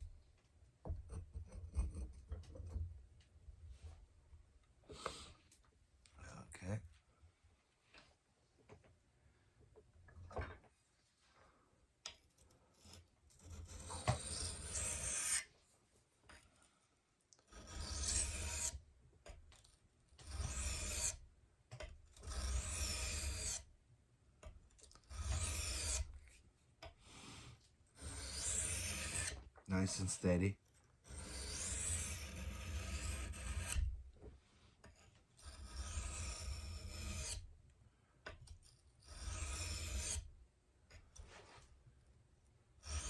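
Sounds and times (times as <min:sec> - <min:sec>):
knife scraping on whetstone: 0:12.8 - 0:15.5, 0:17.5 - 0:18.8, 0:20.2 - 0:21.2, 0:22.1 - 0:23.7, 0:25.0 - 0:26.4, 0:28.0 - 0:30.2, 0:31.0 - 0:33.9, 0:34.8 - 0:37.5, 0:38.5 - 0:40.3.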